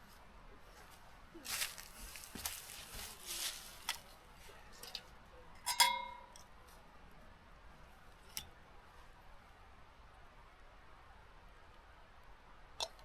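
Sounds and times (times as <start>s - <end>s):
camp gear rustling and scraping: 0.7s - 4.9s
sharp metallic clink: 5.7s - 6.3s.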